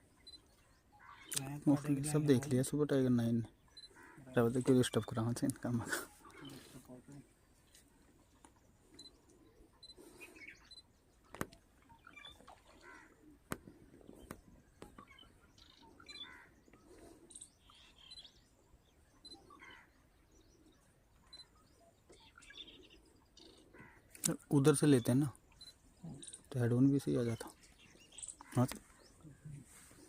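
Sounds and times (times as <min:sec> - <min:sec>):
faint bird chirps: 0:00.0 - 0:30.0.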